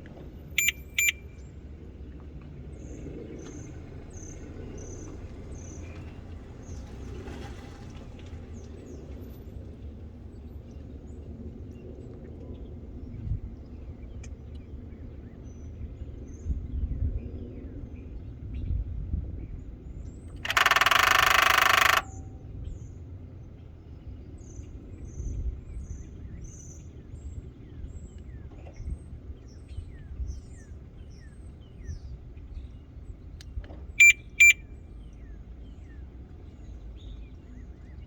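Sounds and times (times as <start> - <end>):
short beeps: 0.6 - 1.4, 20.4 - 22.4, 34.0 - 34.6
engine bay buzzing rattle: 20.4 - 22.5.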